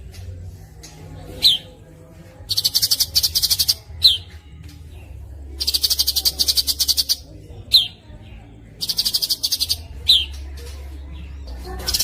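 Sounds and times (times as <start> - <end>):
songbird trilling: 2.5 - 4.2, 5.6 - 8.0, 8.8 - 10.4.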